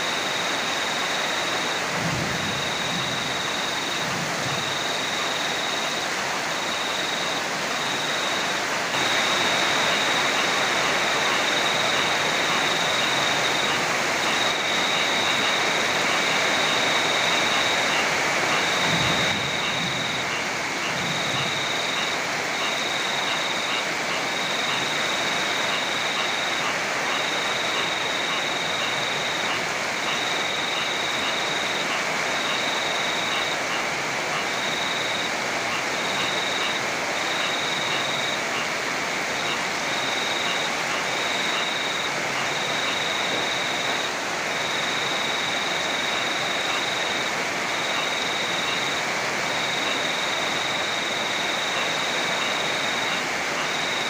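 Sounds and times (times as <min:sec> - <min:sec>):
cricket trilling: 0:00.0 - 0:54.0
heavy rain falling: 0:00.0 - 0:54.0.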